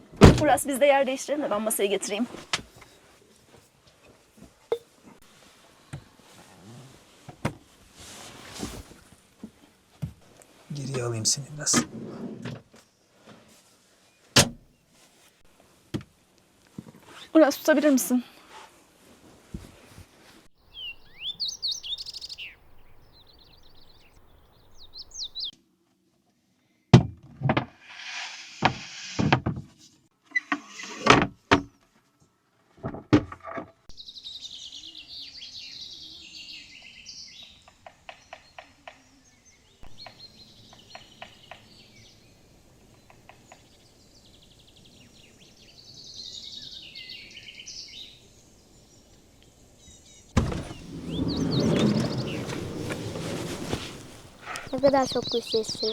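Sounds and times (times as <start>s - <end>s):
songbirds chirping and trilling: 20.6s - 25.6s, 33.9s - 55.9s.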